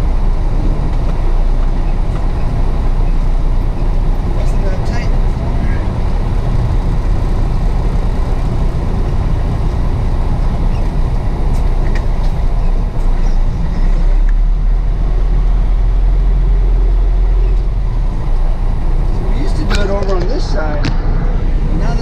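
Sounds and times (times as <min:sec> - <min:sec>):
road noise: 0:00.0 - 0:22.0
truck engine rumble: 0:00.0 - 0:22.0.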